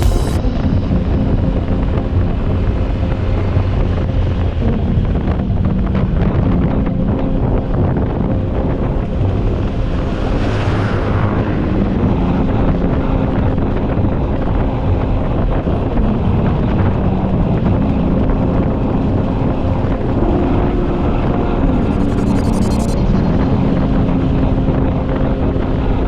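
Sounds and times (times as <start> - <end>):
wind noise on microphone: 0.0 - 26.0
motorcycle engine running: 11.2 - 25.5.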